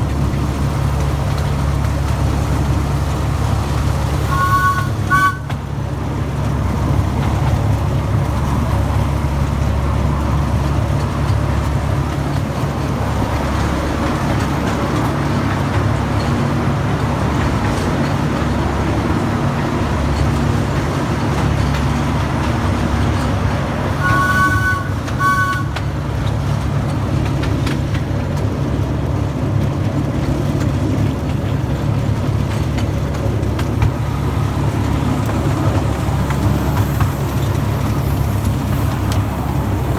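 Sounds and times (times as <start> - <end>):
miniature locomotive rumbling: 0.0 - 39.9
two-tone horn toots: 4.2 - 5.6, 23.9 - 26.0.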